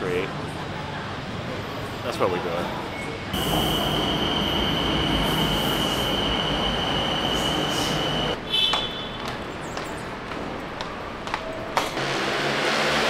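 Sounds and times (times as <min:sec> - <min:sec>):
train rumble: 0:03.4 - 0:08.4.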